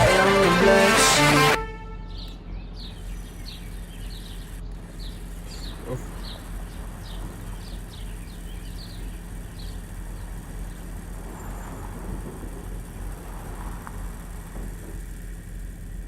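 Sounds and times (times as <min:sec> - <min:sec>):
truck engine idling: 0:00.0 - 0:16.0
bird chirping: 0:02.0 - 0:11.8.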